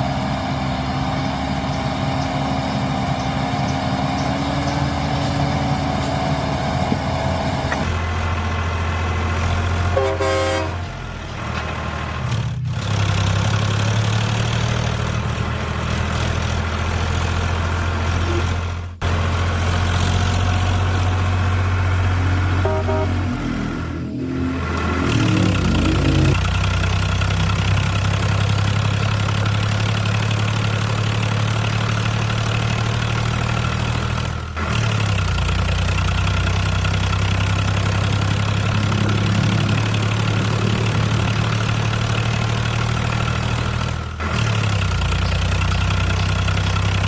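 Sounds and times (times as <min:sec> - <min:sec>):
small vehicle engine droning: 0:00.0 - 0:47.0
horn toot: 0:09.9 - 0:10.8, 0:22.2 - 0:26.4.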